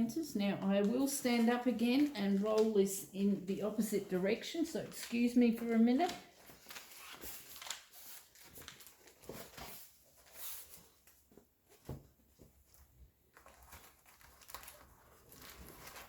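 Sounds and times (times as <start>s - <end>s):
canvas rustling: 5.0s - 12.1s, 13.3s - 16.0s.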